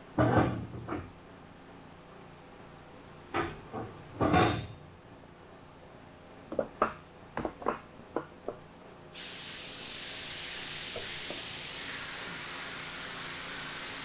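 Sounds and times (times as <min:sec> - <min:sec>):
paint spray gun hissing: 0:09.2 - 0:14.0.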